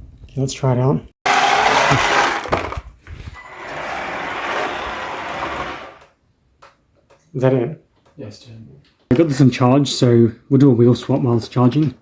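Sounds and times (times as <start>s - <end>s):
tyres scrubbing on surface: 3.2s - 6.0s.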